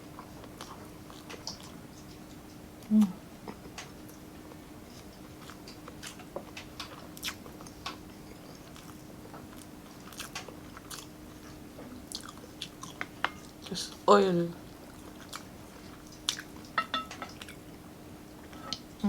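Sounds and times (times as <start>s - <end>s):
faint steady hum: 0.0s - 19.0s
person chewing food: 4.5s - 13.5s, 14.8s - 17.8s.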